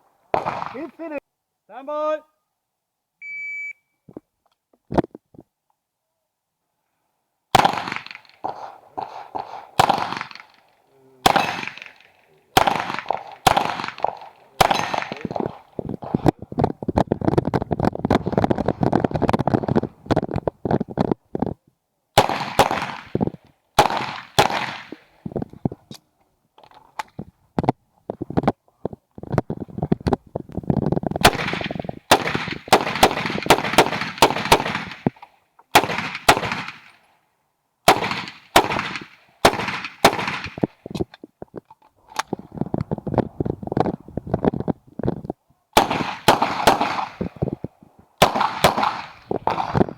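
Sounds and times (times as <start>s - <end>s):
pistol shots echoing: 0.4s - 1.0s, 7.5s - 15.8s, 22.2s - 23.2s, 23.8s - 25.0s, 31.2s - 37.0s, 37.9s - 40.7s, 45.8s - 47.4s, 48.2s - 49.8s.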